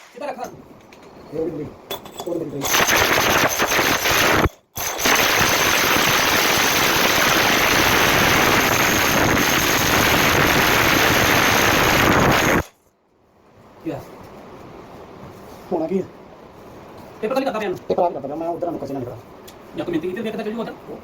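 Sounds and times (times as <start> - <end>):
electric drill grinding into wall: 2.7 - 12.7.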